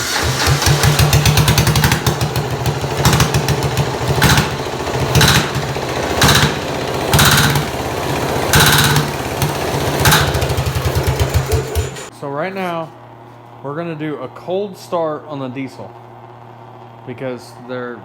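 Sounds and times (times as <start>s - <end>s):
diesel engine knocking: 0.0s - 12.1s
harsh engine bursts: 0.0s - 18.0s.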